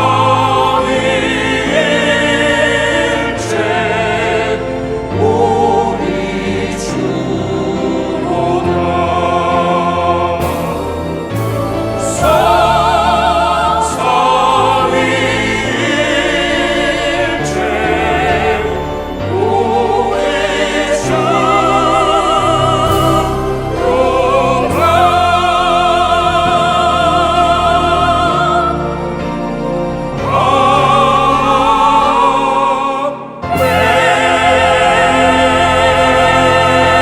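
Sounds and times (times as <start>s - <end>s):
church choir singing a hymn: 0.0s - 37.0s
sustained low accompaniment: 0.0s - 37.0s.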